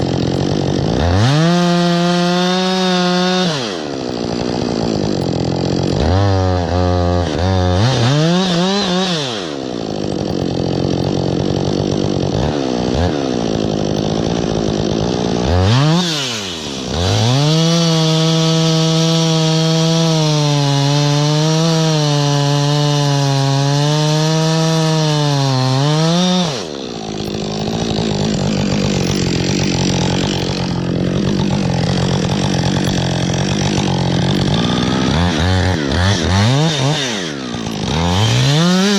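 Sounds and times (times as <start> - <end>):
chainsaw revving and cutting wood: 0.0 - 38.9.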